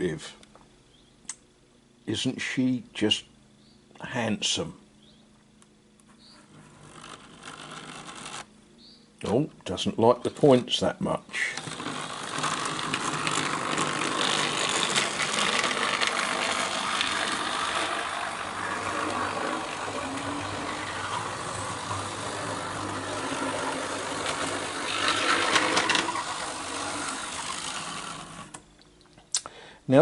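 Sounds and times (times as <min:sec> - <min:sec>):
model train motor whirring: 0:06.5 - 0:08.5, 0:11.4 - 0:28.6
wheels clicking over rail joints: 0:11.4 - 0:28.6.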